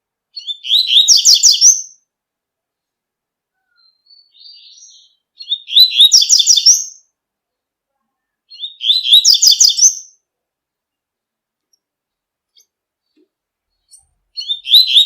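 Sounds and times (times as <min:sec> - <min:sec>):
bird singing high rapid notes: 0:13.8 - 0:15.0.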